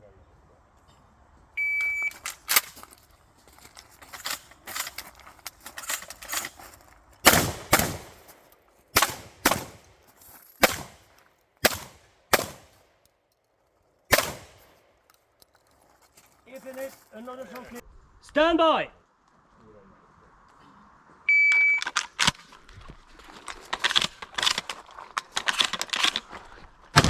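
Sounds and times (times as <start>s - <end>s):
shotgun shots: 7.2s - 10.0s, 10.6s - 12.8s, 14.1s - 14.8s
faint cracks and clatter: 21.8s - 27.0s.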